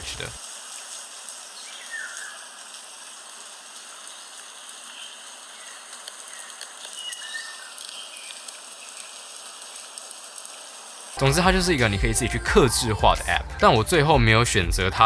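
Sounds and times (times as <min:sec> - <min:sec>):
steady rain hiss: 0:00.0 - 0:14.6.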